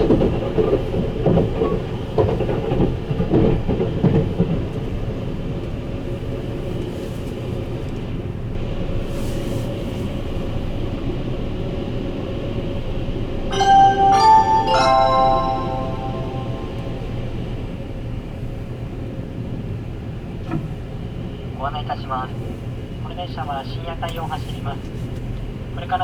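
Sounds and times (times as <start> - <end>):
train rumble from on board: 0.0 - 26.0
chime melody over pa: 13.5 - 17.3.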